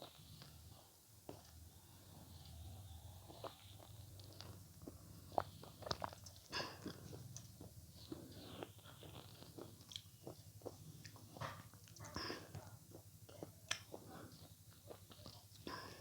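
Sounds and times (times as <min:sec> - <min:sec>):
biting and chewing food: 0:03.2 - 0:16.0.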